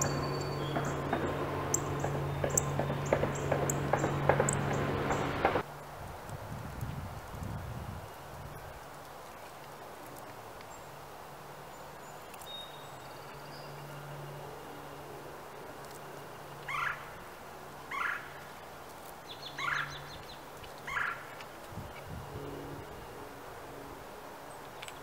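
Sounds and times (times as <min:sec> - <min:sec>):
high bird chatter: 0:00.0 - 0:05.6, 0:19.2 - 0:22.0
loud bird calls: 0:00.0 - 0:05.6, 0:16.6 - 0:17.2, 0:17.9 - 0:18.4, 0:19.3 - 0:21.4.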